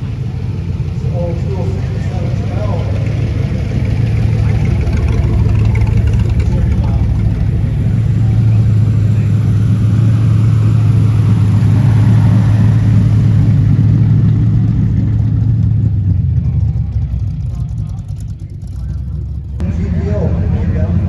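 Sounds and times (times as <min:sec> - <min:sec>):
car engine rumbling: 0:00.0 - 0:21.0.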